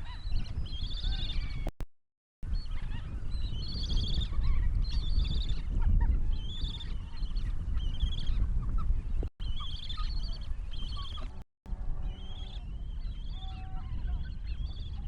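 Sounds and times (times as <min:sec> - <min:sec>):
birds calling: 0:02.5 - 0:11.4, 0:12.0 - 0:15.0.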